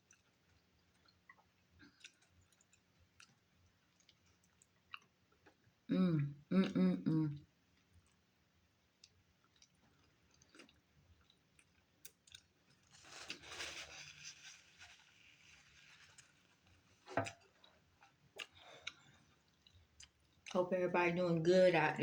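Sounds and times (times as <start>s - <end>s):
chewing with wet mouth clicks: 0.0s - 5.7s, 8.9s - 12.8s, 17.2s - 20.6s.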